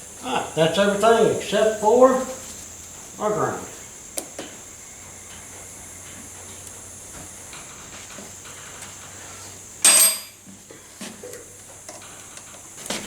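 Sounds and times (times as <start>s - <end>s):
hand tool clicking on metal: 9.8s - 10.4s
loud metal clank with ringing: 9.8s - 10.5s.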